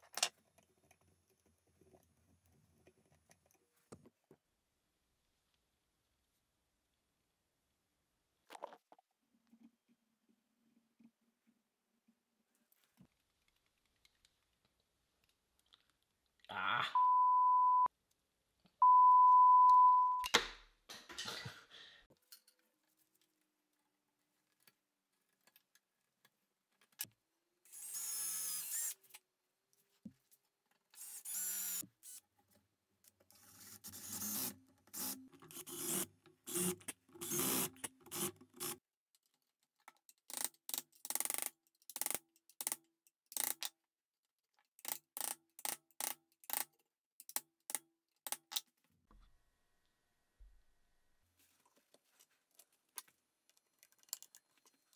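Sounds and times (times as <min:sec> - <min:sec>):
high beeps: 0:17.0 - 0:17.9, 0:18.8 - 0:20.3
power drill boring into wood: 0:27.7 - 0:29.0, 0:31.0 - 0:31.8.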